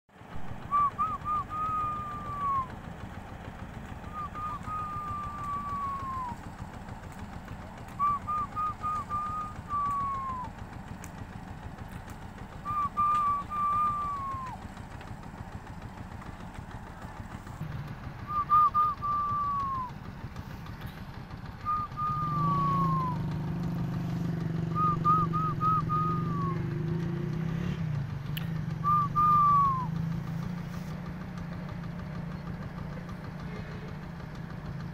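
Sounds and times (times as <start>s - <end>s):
engine hum: 0.1s - 34.9s
low steady rumble: 0.1s - 34.9s
bird call with falling whistle: 0.4s - 2.8s, 4.0s - 6.5s, 7.9s - 10.6s, 12.6s - 14.6s, 18.2s - 20.0s, 21.6s - 23.3s, 24.7s - 26.7s, 28.8s - 30.0s.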